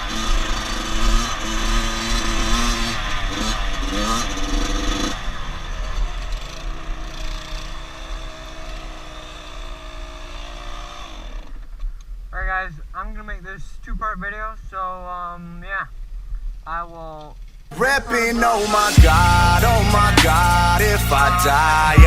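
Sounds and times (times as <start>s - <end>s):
dirt bike engine revving: 0.0s - 11.7s, 17.7s - 22.0s.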